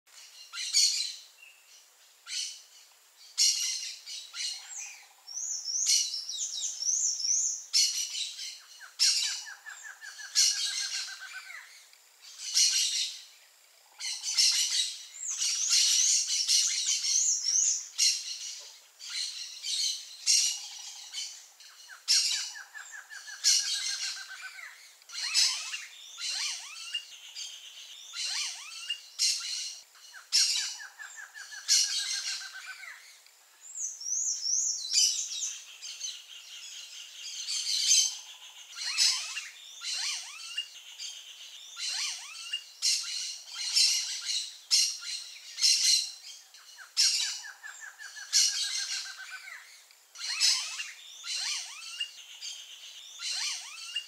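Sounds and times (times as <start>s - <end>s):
short noisy bird calls: 14.0s - 54.0s.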